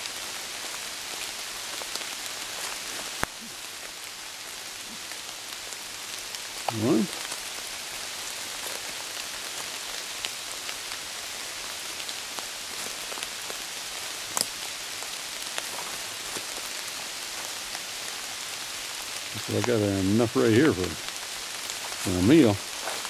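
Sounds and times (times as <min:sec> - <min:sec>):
steady rain: 0:00.0 - 0:23.0
raindrop ticks: 0:12.0 - 0:14.8.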